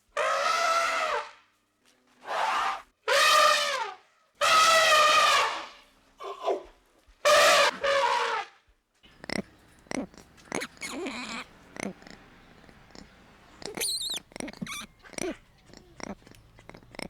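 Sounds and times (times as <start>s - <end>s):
animal horn-like calls: 9.1s - 17.0s.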